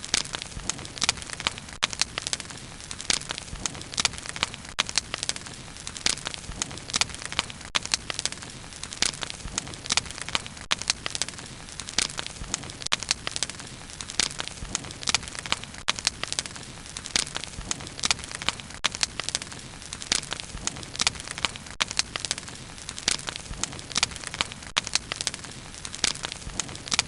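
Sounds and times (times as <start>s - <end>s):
wood campfire crackling: 0.0s - 27.0s.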